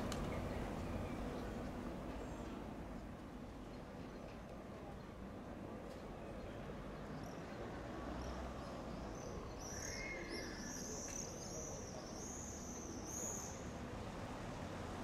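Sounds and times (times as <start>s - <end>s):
faint town background hum: 0.0s - 15.0s
small bird singing: 9.2s - 13.6s.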